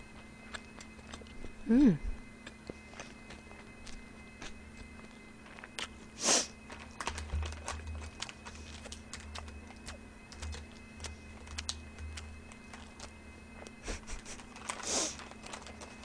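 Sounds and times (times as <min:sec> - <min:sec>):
faint electrical hum: 0:00.0 - 0:16.0
breath hiss: 0:06.2 - 0:06.6, 0:14.8 - 0:15.2.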